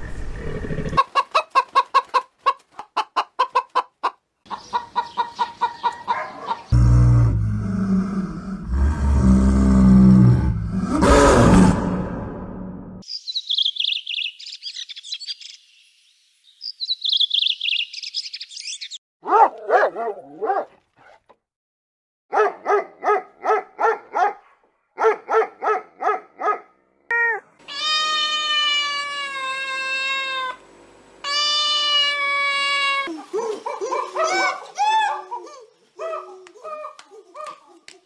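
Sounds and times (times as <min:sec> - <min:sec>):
puppy yapping: 0:19.2 - 0:20.7
long drawn-out animal calls: 0:27.6 - 0:30.6, 0:31.2 - 0:33.3.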